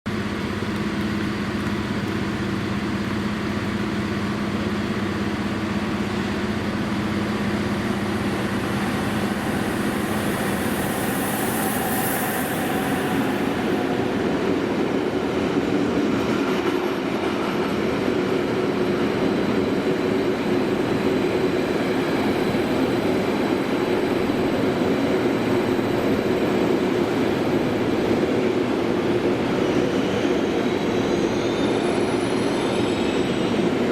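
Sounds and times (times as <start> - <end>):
train wheels rumbling on rail: 0.1 - 33.9
faint high wheel squeal: 6.4 - 15.6, 29.4 - 33.9.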